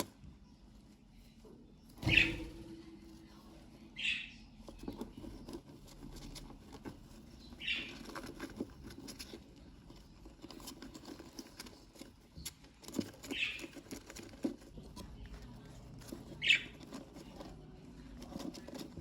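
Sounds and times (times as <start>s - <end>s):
birds scratching and tapping: 0.0s - 19.0s.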